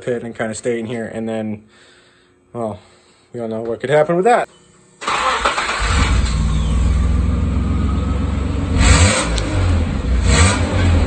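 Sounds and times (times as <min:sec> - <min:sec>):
loud car engine revving: 0:05.8 - 0:11.0.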